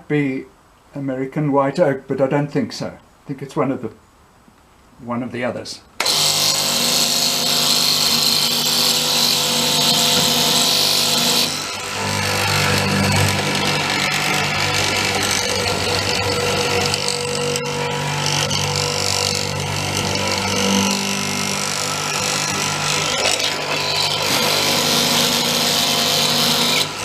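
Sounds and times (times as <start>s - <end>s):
chisel rasping into wood: 6.0s - 17.6s, 18.4s - 26.9s
motor hum: 6.0s - 27.0s.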